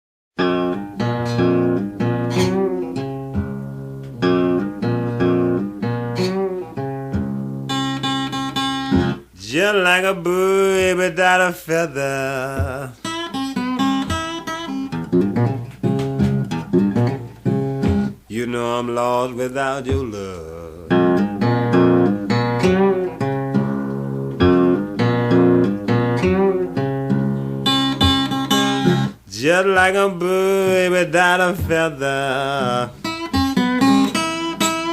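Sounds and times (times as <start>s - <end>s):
acoustic guitar blues: 0.4s - 34.9s
person singing: 9.4s - 13.1s, 18.3s - 21.4s, 29.3s - 33.0s.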